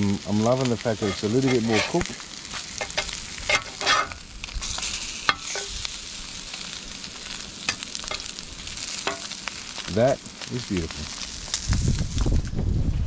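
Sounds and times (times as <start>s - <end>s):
meat sizzling in a pan: 0.0s - 12.5s
utensil scraping and tapping pan: 1.0s - 2.1s, 2.8s - 4.2s, 5.3s - 5.7s, 9.0s - 9.4s.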